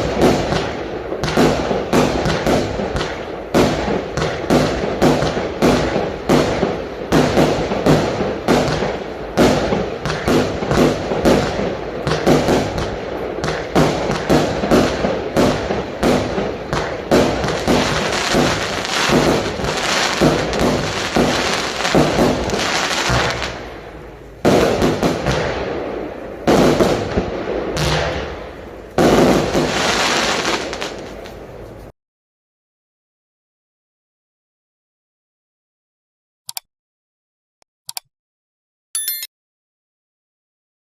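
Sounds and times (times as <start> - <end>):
firework barrage bangs: 0.0 - 31.5
firework crackle: 0.0 - 31.9.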